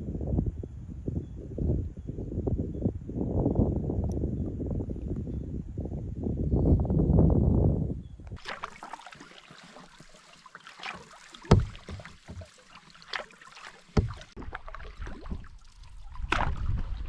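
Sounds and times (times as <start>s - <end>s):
paddle splashing in water: 8.4s - 17.0s.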